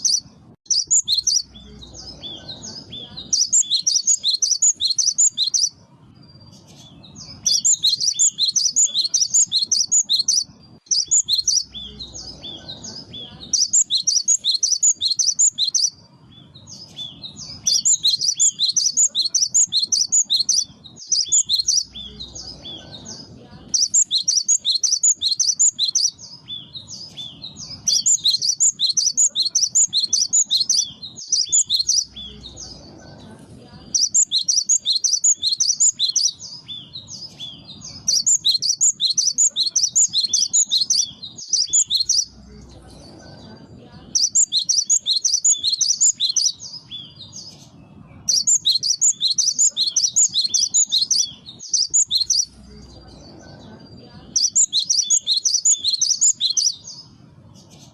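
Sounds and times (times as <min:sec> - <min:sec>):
bird singing rapid high notes: 0:00.0 - 0:32.8, 0:33.8 - 0:42.4, 0:44.1 - 0:53.0, 0:54.3 - 0:57.2.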